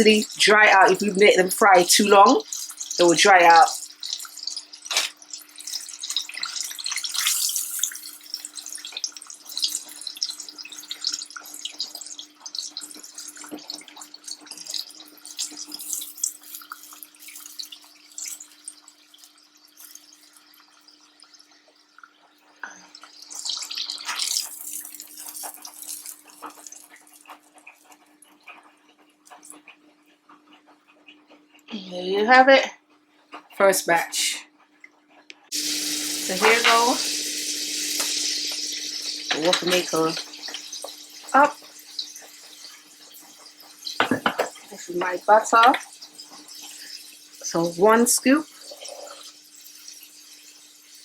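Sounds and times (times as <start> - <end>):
meat sizzling in hot oil: 0.0 - 21.9, 23.0 - 27.7, 35.5 - 51.0
steady low hum: 35.5 - 40.8.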